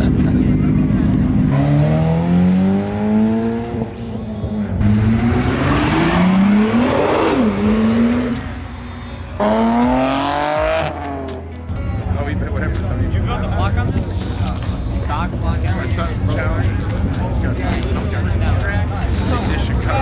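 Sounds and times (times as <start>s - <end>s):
car engine revving hard: 0.0s - 11.4s.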